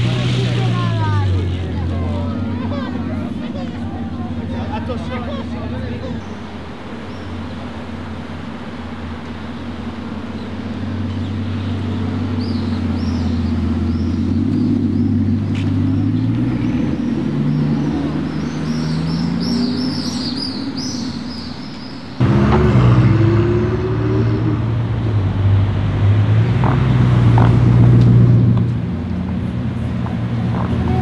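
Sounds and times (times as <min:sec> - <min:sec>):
car engine driving past: 0:00.0 - 0:31.0
faint birds chirping: 0:01.8 - 0:22.2.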